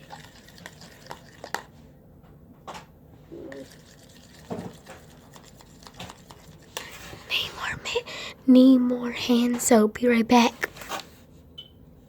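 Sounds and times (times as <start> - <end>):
thick soap stirred in a bowl: 0.0 - 1.8, 3.4 - 7.5.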